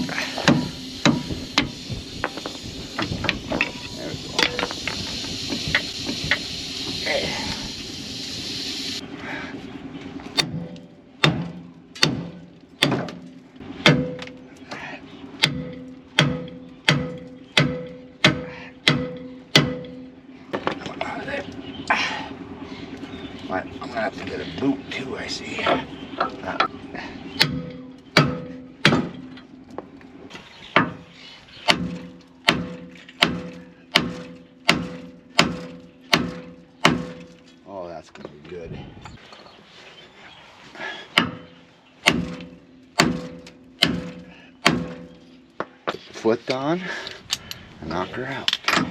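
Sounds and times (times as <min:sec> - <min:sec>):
hammer striking steel: 0:00.4 - 0:01.7, 0:10.4 - 0:14.4, 0:15.4 - 0:20.1, 0:27.4 - 0:29.4, 0:31.7 - 0:37.3, 0:41.2 - 0:45.3.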